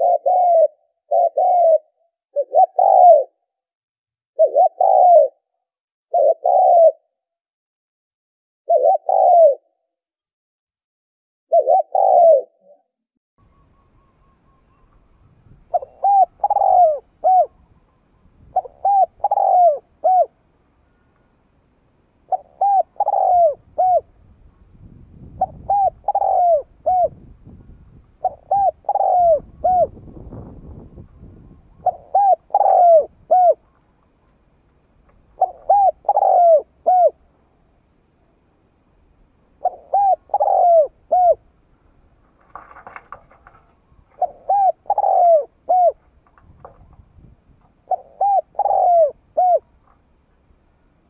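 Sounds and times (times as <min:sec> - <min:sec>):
dove cooing: 0:00.0 - 0:03.4, 0:04.4 - 0:05.5, 0:06.1 - 0:07.1, 0:08.7 - 0:09.7, 0:11.5 - 0:12.9, 0:15.7 - 0:17.8, 0:18.5 - 0:20.4, 0:22.3 - 0:24.1, 0:25.4 - 0:27.3, 0:28.2 - 0:33.7, 0:35.3 - 0:37.2, 0:39.6 - 0:41.5, 0:43.4 - 0:46.8, 0:47.8 - 0:49.7.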